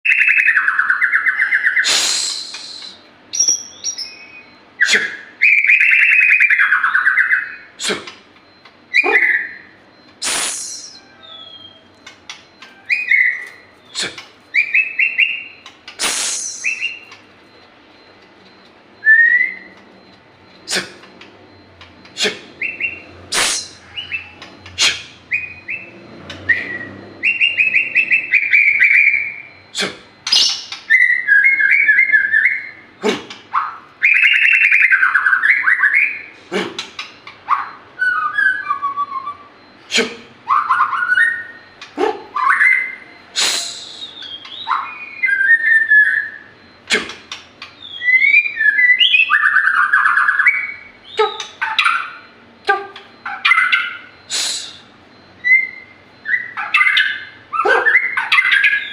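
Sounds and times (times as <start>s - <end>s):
bird singing whistled phrases: 14.6s - 17.1s, 19.0s - 19.8s, 42.4s - 46.5s.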